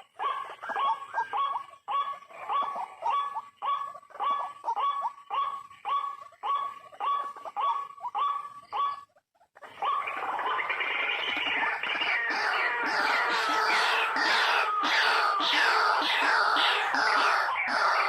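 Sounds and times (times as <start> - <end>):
waterhen calling harshly: 11.4 - 18.0.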